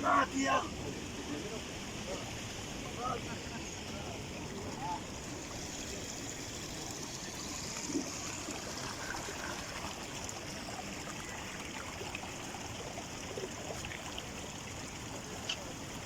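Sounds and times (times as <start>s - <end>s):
stream water flowing: 0.0s - 16.0s.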